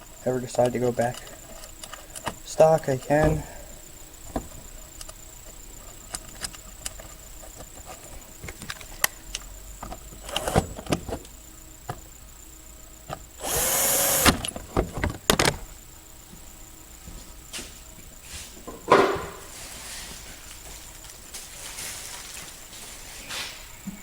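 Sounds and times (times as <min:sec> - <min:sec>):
cordless drill spinning: 0:13.4 - 0:14.5.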